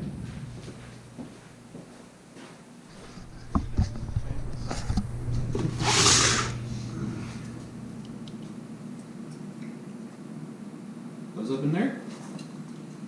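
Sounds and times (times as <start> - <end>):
steady low hum: 0.0 - 11.4
brief rushing hiss: 5.7 - 7.6.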